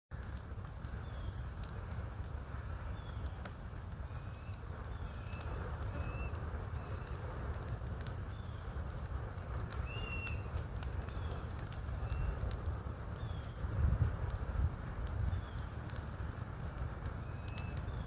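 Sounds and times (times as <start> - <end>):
wood fire crackling: 0.1 - 18.0
high bird calls: 9.8 - 11.4.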